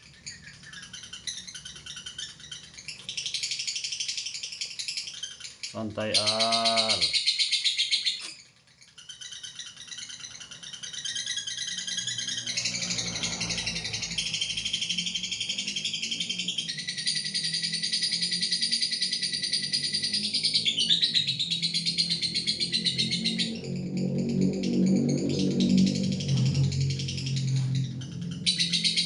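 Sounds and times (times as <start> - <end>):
lovebird chattering: 0.0 - 29.0.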